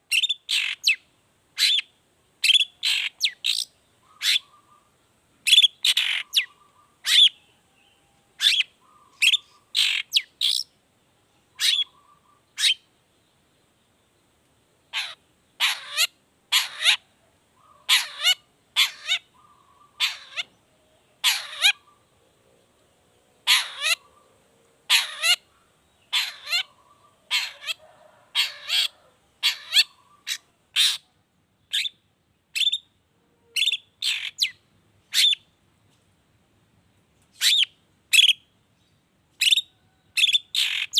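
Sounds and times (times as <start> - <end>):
shrike giving sharp calls: 14.9 - 17.0, 17.8 - 20.5, 21.2 - 22.0, 23.4 - 24.2, 24.9 - 25.4, 26.1 - 31.0.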